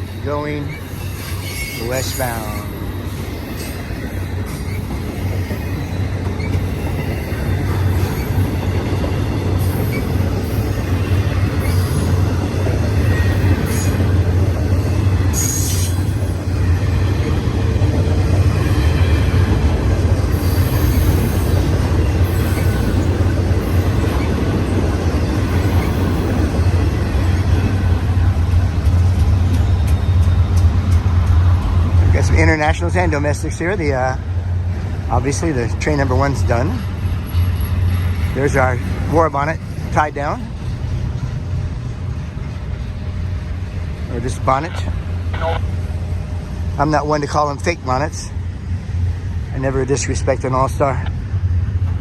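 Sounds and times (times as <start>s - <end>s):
freight train rolling past: 0.0s - 52.0s
high-pitched wheel squeal: 0.7s - 2.7s, 15.3s - 16.4s.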